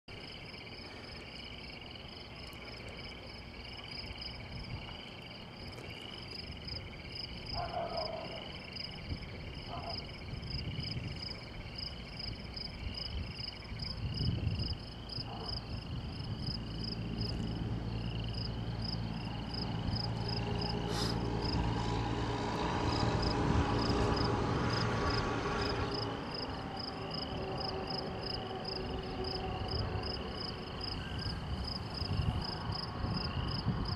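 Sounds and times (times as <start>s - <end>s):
insects chirping: 0.1s - 33.9s
low engine-like hum: 15.3s - 33.9s.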